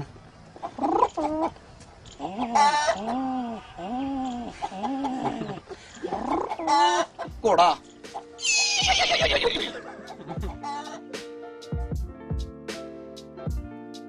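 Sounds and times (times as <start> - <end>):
man imitating pigeon cooing: 2.2 - 6.9.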